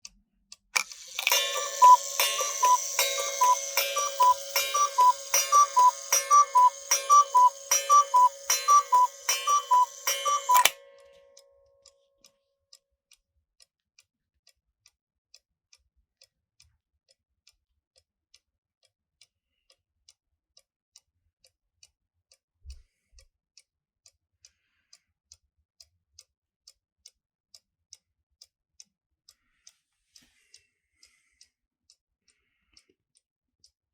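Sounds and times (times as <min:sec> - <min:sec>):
clock gong strikes: 0:00.8 - 0:10.9
clock ticking: 0:00.8 - 0:11.3
two-note cuckoo clock calls: 0:00.8 - 0:11.4.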